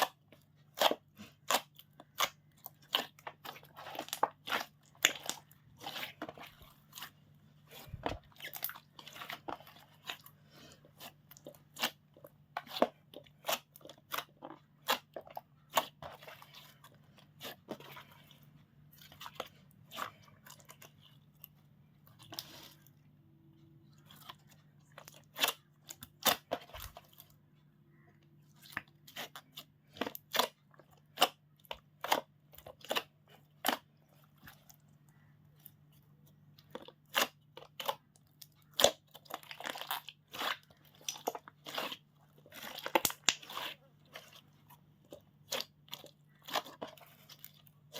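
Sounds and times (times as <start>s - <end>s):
slime being squished by hand: 36.5s - 47.9s.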